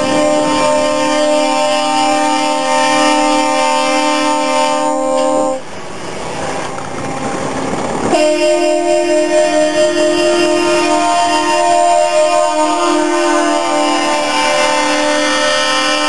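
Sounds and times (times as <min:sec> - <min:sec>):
truck air horn chord: 0:00.0 - 0:05.6, 0:08.1 - 0:16.0
rushing noise: 0:00.0 - 0:16.0.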